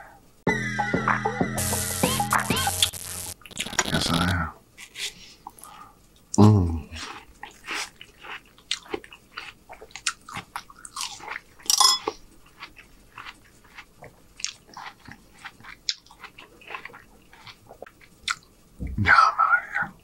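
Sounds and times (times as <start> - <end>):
wet mouth clicks and crunches: 3.4 - 4.3
person chewing watermelon: 6.9 - 18.5.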